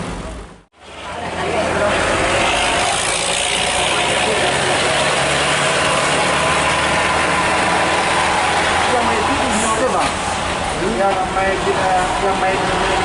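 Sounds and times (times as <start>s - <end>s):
diesel truck engine running: 0.0s - 13.0s
loud wash of noise: 1.3s - 13.0s.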